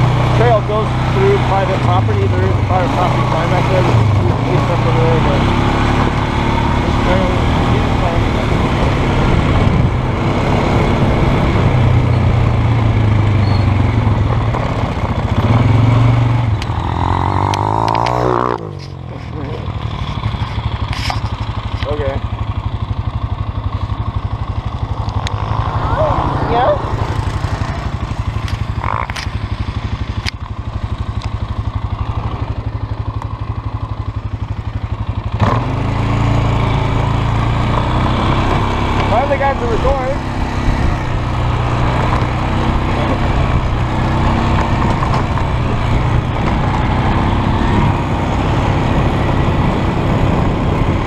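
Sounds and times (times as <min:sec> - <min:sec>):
atv engine running: 0:00.0 - 0:51.0
sharp clicks: 0:17.4 - 0:19.0.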